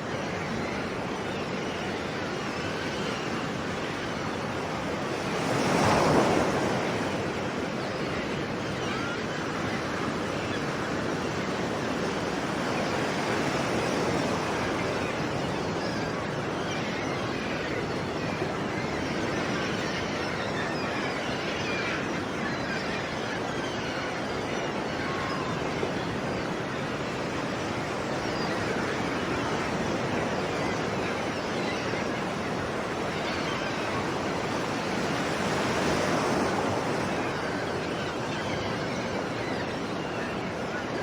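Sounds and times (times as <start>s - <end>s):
wind: 0.0s - 41.0s
sea waves breaking on shore: 26.6s - 41.0s.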